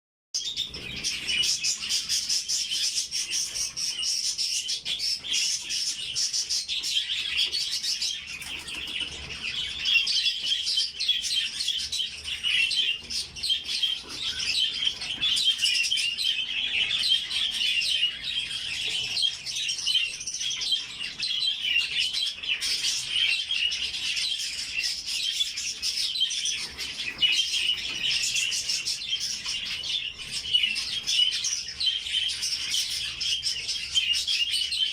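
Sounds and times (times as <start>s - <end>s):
flock of budgerigars chattering: 0.4s - 34.9s.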